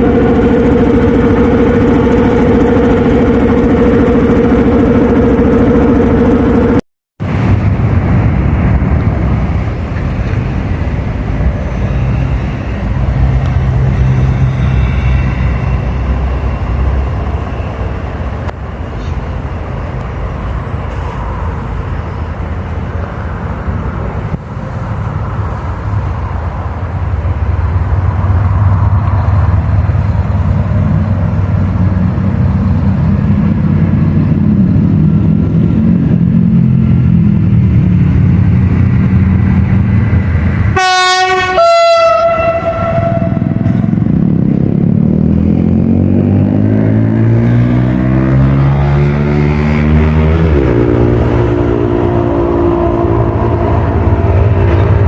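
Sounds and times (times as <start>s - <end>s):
diesel locomotive engine rumble: 0.0s - 55.0s
train horn blasts: 40.7s - 44.1s.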